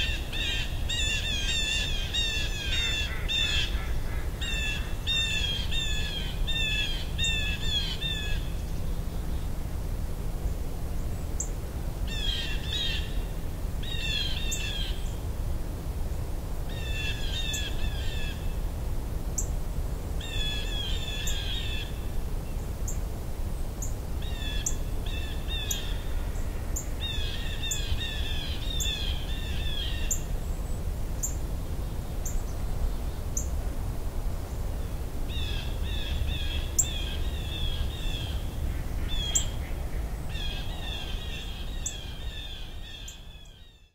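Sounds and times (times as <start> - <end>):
songbirds chattering: 35.4 - 43.9.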